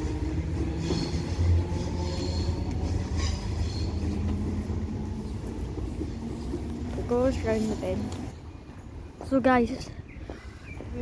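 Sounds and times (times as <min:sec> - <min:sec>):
train rumbling: 0:00.0 - 0:11.0
high-pitched train squeals: 0:00.7 - 0:04.2.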